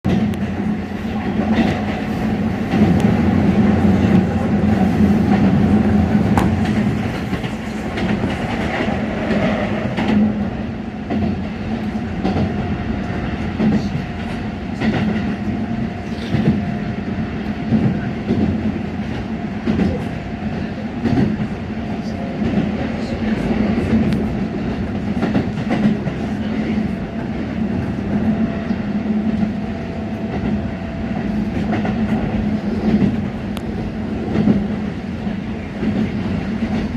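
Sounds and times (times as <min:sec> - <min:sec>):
train hum on rails: 0:00.0 - 0:36.9
train wheels clicking: 0:01.4 - 0:12.7.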